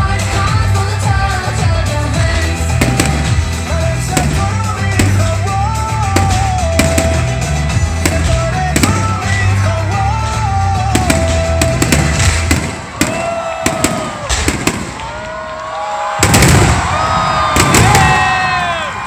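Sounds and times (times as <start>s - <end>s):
background music: 0.0s - 15.0s
fireworks bangs: 0.2s - 19.0s.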